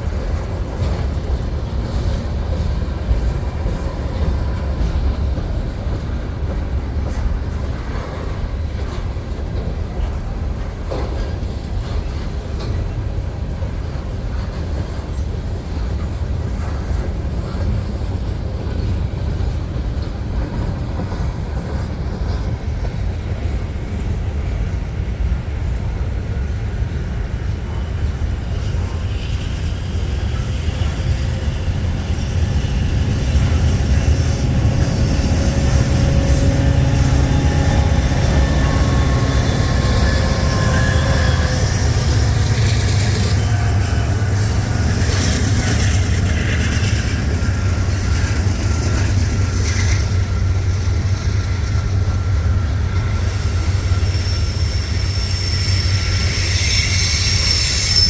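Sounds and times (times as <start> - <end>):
freight train rumbling past: 0.0 - 58.0
wheel squeal: 28.0 - 50.2, 52.2 - 58.0
hiss: 53.0 - 58.0.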